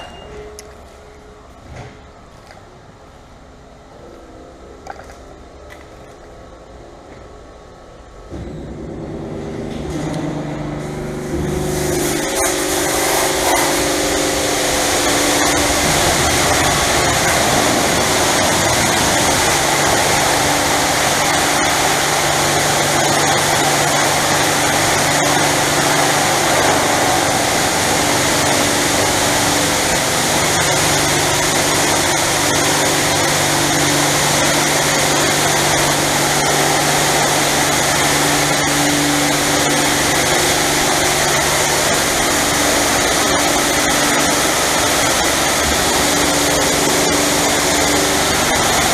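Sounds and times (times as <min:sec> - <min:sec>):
pump and motors humming: 0:08.3 - 0:48.9
high-pressure water spraying: 0:10.9 - 0:48.9.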